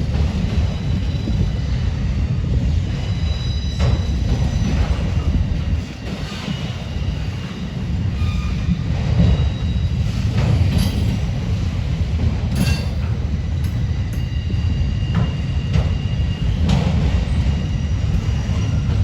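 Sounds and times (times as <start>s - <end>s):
high wheel squeals: 2.9s - 5.4s.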